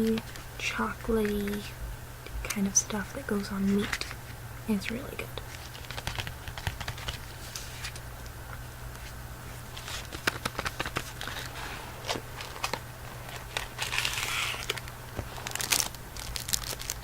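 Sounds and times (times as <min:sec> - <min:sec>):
steady low hum: 0:00.0 - 0:17.0
wrapper crinkling and tearing: 0:05.5 - 0:08.0, 0:09.7 - 0:17.0.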